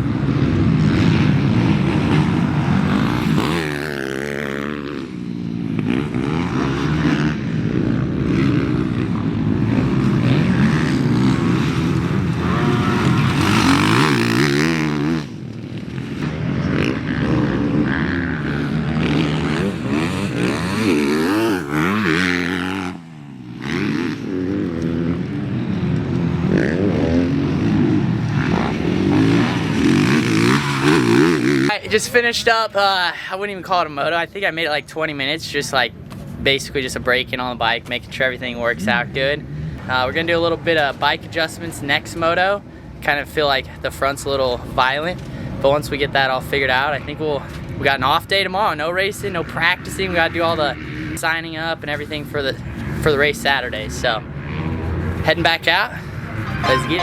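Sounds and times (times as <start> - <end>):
motocross bike engine revving: 0.0 - 31.9.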